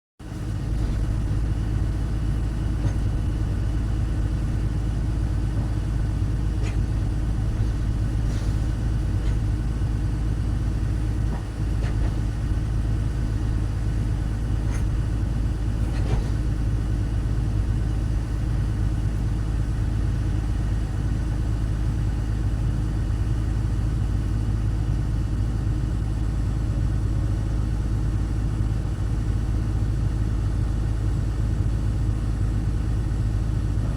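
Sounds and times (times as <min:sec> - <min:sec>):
excavator diesel engine running: 0:00.2 - 0:33.9
faint clanks: 0:00.3 - 0:17.0.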